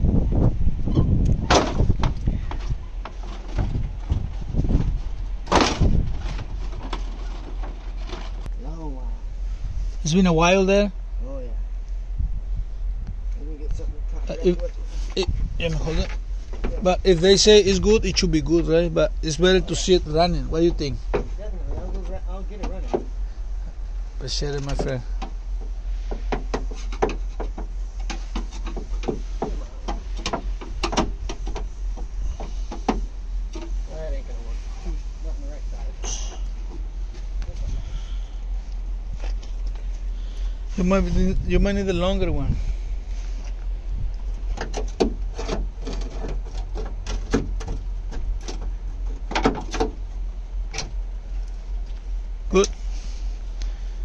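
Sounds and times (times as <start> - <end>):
steady low rumble: 0.0 - 54.0
metal knocks and clicks: 24.7 - 33.8, 44.5 - 50.0.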